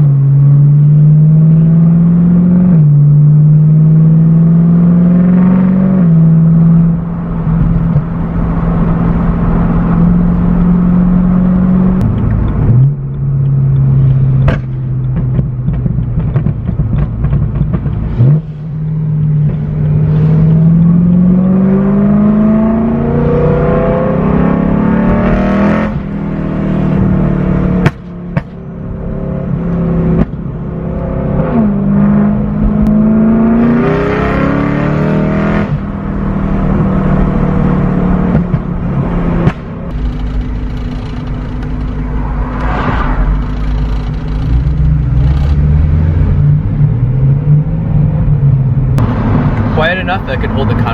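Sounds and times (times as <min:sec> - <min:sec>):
car engine exhaust drone: 0:00.0 - 0:50.9
sharp clicks: 0:39.5 - 0:45.7.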